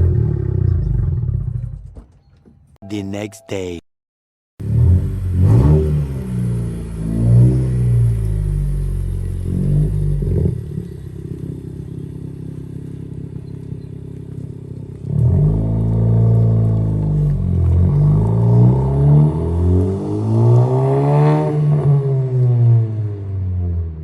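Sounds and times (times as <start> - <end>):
car exhaust revving: 4.6 - 23.2.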